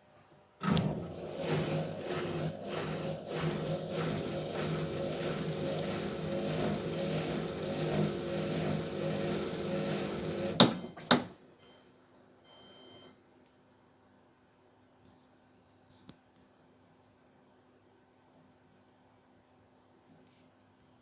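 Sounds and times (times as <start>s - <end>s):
washing machine humming: 0.6s - 11.9s.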